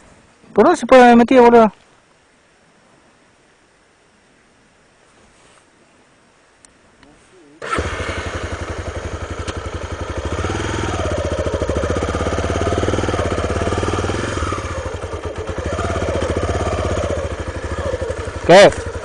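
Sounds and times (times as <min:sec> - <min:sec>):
motorcycle engine idling: 0:07.6 - 0:19.0.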